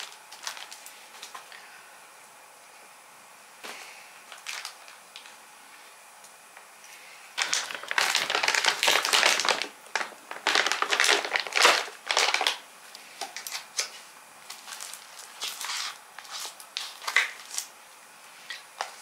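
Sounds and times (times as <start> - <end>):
packaging crinkling and rustling: 0.0 - 1.6, 4.3 - 5.4, 7.4 - 12.6, 13.2 - 17.7.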